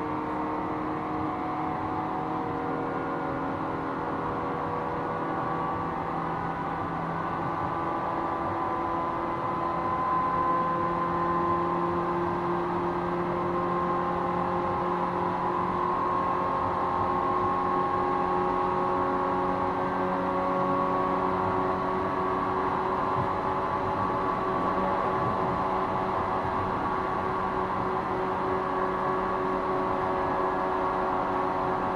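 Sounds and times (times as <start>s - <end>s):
traction motor whine: 20.6s - 31.9s.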